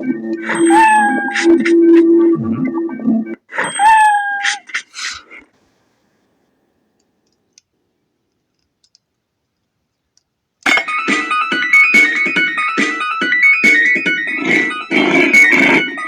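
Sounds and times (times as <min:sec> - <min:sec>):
electronic tune from speaker: 0:00.0 - 0:03.4
faint clicks: 0:08.3 - 0:10.3.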